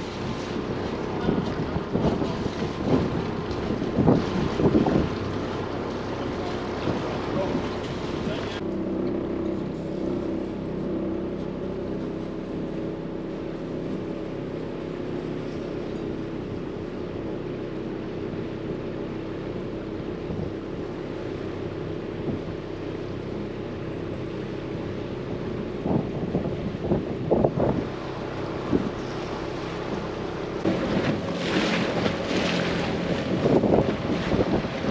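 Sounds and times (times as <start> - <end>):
wind noise: 0.0 - 8.6, 22.2 - 22.6, 25.1 - 34.9
boat engine running: 0.0 - 34.9
water noise: 0.0 - 34.9.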